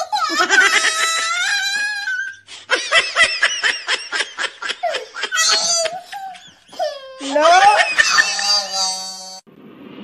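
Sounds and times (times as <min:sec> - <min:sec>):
higher-pitched laugh: 0:00.1 - 0:09.0
person laughing heartily: 0:02.5 - 0:08.6.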